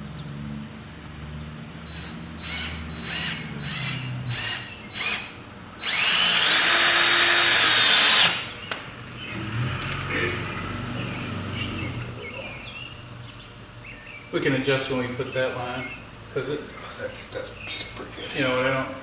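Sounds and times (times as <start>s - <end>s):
power drill driving screw into wood: 2.0s - 8.5s.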